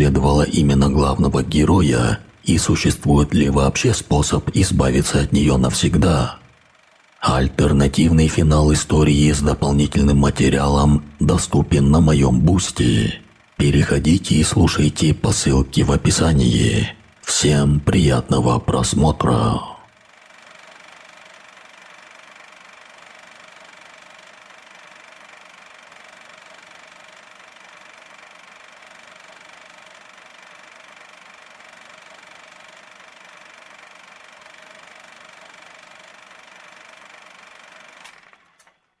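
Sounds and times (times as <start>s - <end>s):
click: 38.0s - 38.8s.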